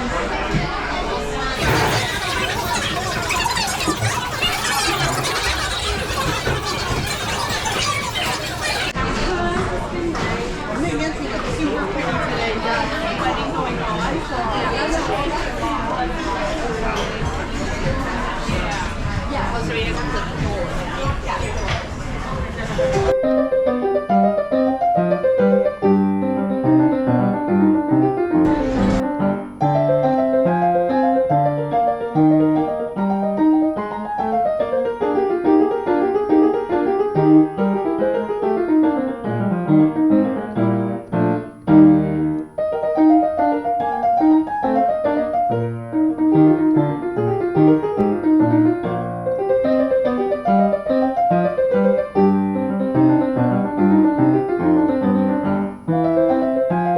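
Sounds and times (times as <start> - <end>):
background piano music: 22.9 - 56.9.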